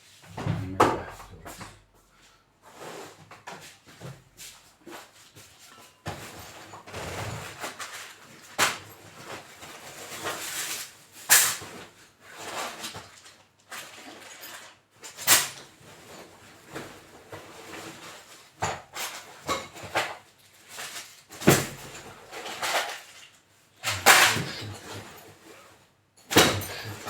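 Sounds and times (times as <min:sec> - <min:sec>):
tools clattering in a drawer: 0:06.1 - 0:10.8, 0:11.4 - 0:16.8, 0:17.4 - 0:25.4, 0:26.2 - 0:27.0.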